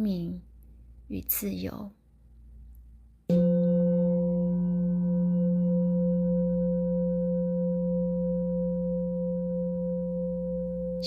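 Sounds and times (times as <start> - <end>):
singing bowl ringing: 3.3 - 11.0.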